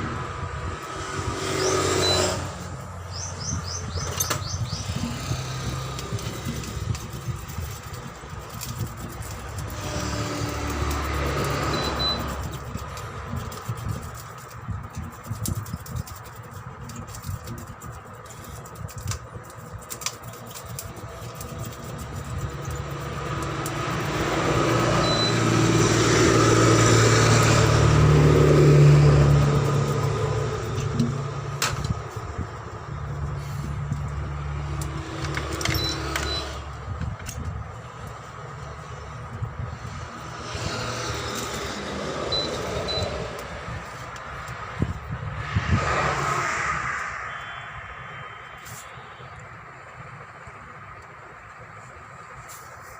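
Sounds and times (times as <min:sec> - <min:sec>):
vehicle engine passing by: 0:00.0 - 0:14.8, 0:21.4 - 0:36.9, 0:38.4 - 0:50.6
low engine hum: 0:00.0 - 0:52.9.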